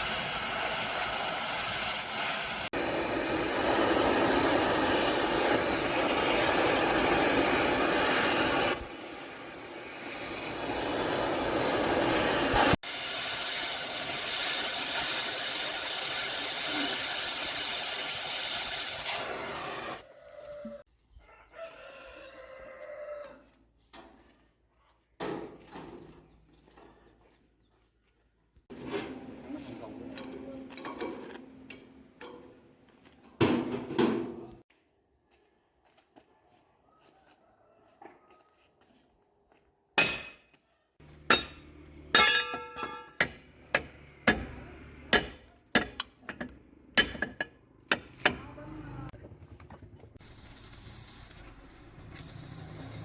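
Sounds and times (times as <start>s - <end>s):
rooster crowing: 20.0s - 23.6s, 36.8s - 38.8s
hammer striking steel: 40.0s - 40.5s, 41.1s - 48.7s.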